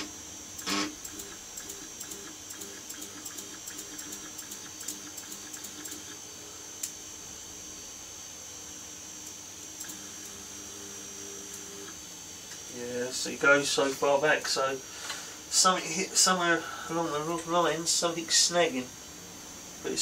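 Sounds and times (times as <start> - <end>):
stepper motor ticking steps: 0.0 - 6.2.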